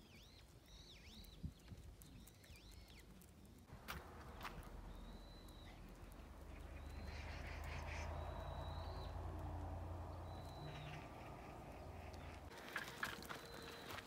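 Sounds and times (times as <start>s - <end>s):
low steady rumble: 3.7s - 12.5s.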